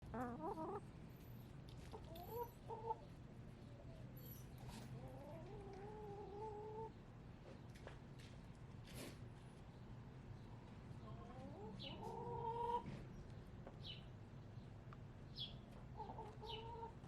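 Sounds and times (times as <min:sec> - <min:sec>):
hens clucking and calling: 0:00.0 - 0:00.8, 0:01.9 - 0:03.0, 0:05.0 - 0:06.9, 0:11.0 - 0:12.9, 0:15.9 - 0:17.0.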